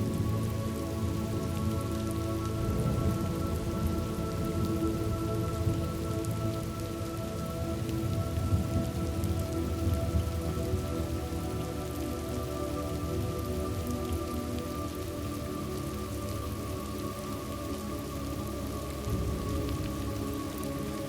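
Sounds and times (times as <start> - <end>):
heavy rain: 0.0 - 21.0
thunder rumble: 2.6 - 11.4, 19.1 - 20.6.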